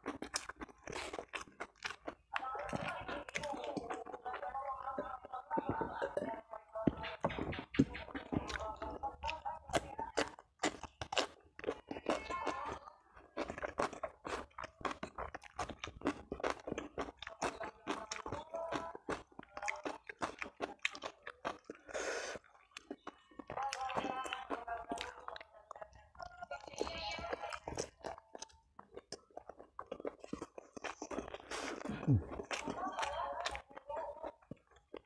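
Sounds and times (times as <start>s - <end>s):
person chewing food: 0.0s - 35.0s.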